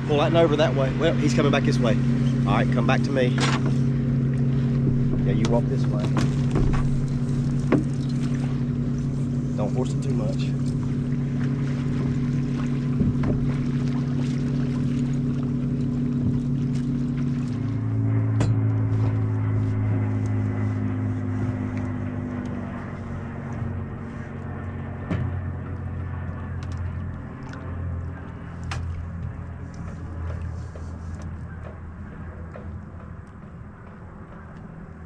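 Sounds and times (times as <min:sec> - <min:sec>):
boat motor humming: 0:00.0 - 0:35.0
light knocks on boat: 0:04.4 - 0:08.6, 0:10.7 - 0:14.9, 0:18.3 - 0:19.2, 0:25.0 - 0:25.5.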